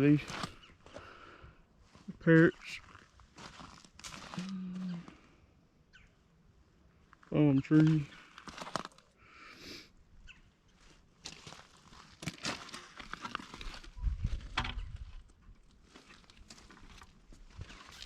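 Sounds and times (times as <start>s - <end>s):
footsteps crunching: 0.0s - 1.2s, 1.8s - 5.2s, 7.1s - 9.1s, 10.7s - 18.0s.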